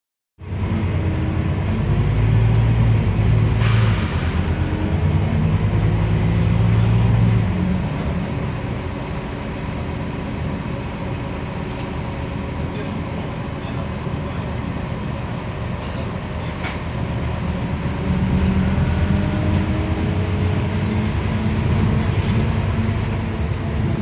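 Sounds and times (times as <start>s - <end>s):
bus diesel engine running: 0.4s - 24.0s
compressed air hiss: 3.6s - 4.5s.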